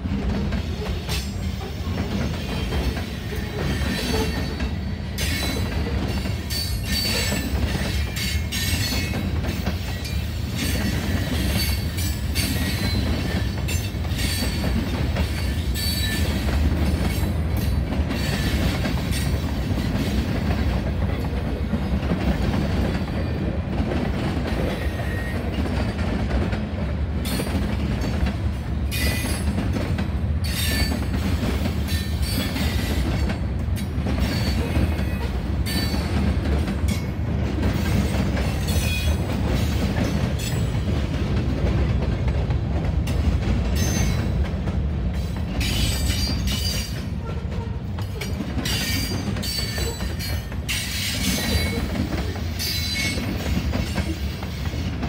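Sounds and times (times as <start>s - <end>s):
train wheels rumbling on rails: 0.0s - 55.0s
metallic wheel clicks and squeals: 2.4s - 14.6s, 15.3s - 16.4s, 33.8s - 36.2s, 40.4s - 40.8s, 43.8s - 44.3s, 45.6s - 54.2s.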